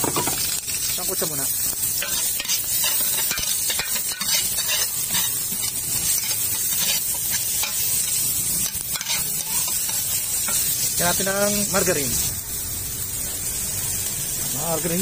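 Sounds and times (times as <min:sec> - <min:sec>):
garlic and onion sizzling: 0:00.0 - 0:15.0
metal ladle scraping a pan: 0:01.9 - 0:10.8.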